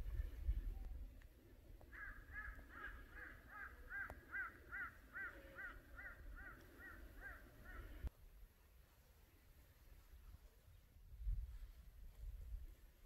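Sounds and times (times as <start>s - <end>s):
low wind rumble: 0.0s - 8.1s.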